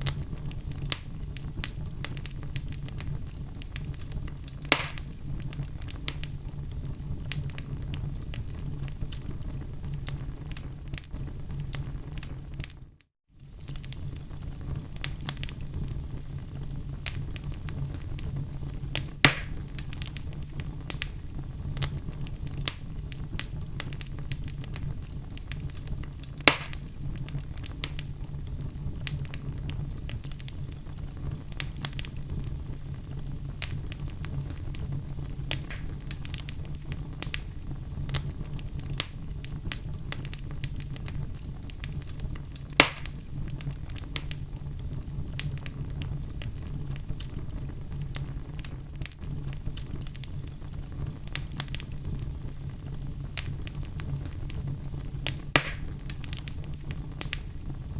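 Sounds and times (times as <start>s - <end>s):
sharp pops from burning logs: 0.0s - 12.8s, 13.4s - 15.9s, 17.0s - 32.6s, 33.3s - 57.9s
fire crackling: 0.0s - 57.9s
flames burning: 0.0s - 57.9s.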